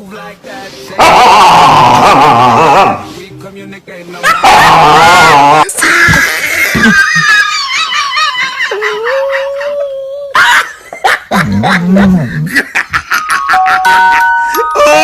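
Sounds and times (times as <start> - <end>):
dog howling and whining: 4.3 - 5.6.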